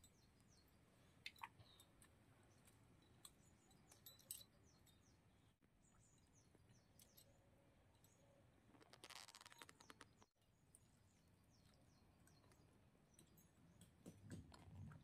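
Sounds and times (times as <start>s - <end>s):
crackly rustle: 8.7s - 10.9s.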